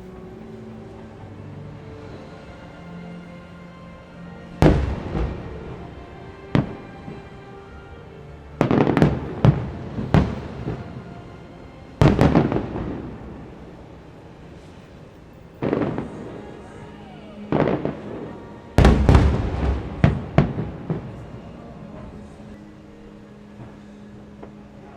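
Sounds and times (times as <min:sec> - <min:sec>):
faint music: 0:00.0 - 0:24.9
distant fireworks bursting: 0:04.6 - 0:07.3, 0:08.6 - 0:11.0, 0:12.0 - 0:13.8, 0:15.6 - 0:16.7, 0:17.5 - 0:22.4.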